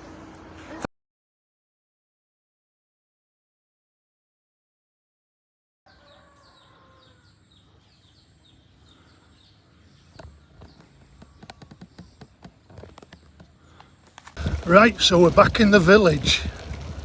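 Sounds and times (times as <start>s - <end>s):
bird chirping: 6.0s - 16.3s.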